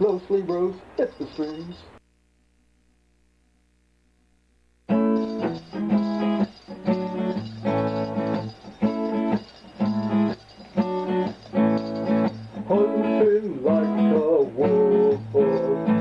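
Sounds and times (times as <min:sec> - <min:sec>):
guitar strumming chords: 0:04.9 - 0:16.0.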